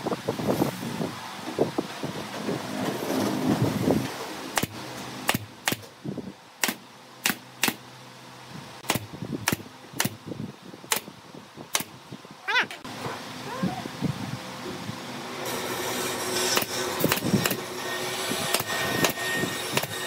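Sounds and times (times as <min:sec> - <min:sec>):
nail gun firing: 0:04.5 - 0:05.9, 0:06.6 - 0:07.8, 0:08.8 - 0:10.2, 0:10.9 - 0:11.1, 0:11.7 - 0:12.0, 0:16.5 - 0:17.6, 0:18.5 - 0:20.0.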